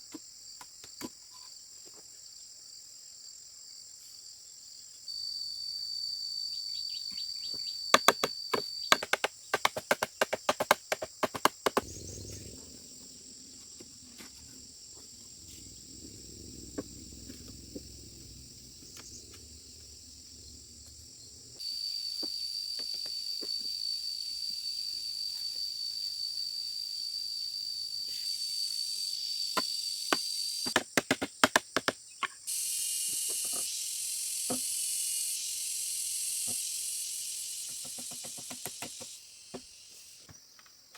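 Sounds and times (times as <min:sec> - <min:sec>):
hiss: 0:11.7 - 0:30.9, 0:32.4 - 0:40.3
high-pitched insect drone: 0:11.8 - 0:30.8, 0:32.5 - 0:40.2.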